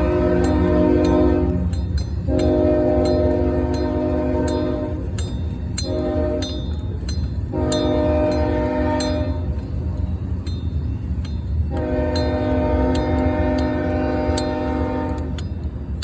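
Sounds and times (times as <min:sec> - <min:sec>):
locomotive air horn blasts: 0:00.0 - 0:05.2, 0:05.8 - 0:06.8, 0:07.5 - 0:09.5, 0:11.7 - 0:15.4.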